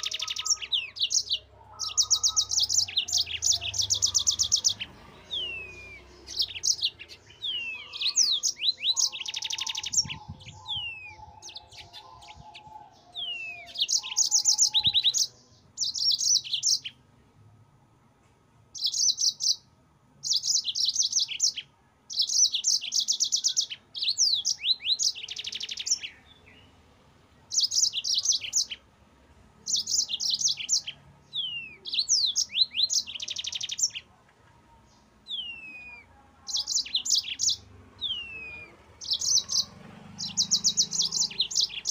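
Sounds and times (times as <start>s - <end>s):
canary singing trills: 0.0s - 17.0s, 18.7s - 41.9s.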